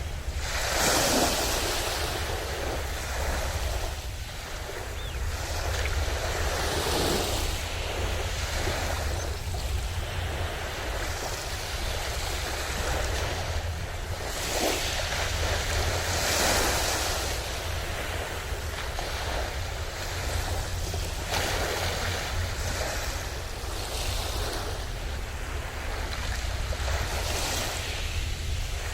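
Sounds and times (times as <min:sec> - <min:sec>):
sea waves breaking on shore: 0:00.0 - 0:28.9
wind rumble on microphone: 0:00.0 - 0:28.9.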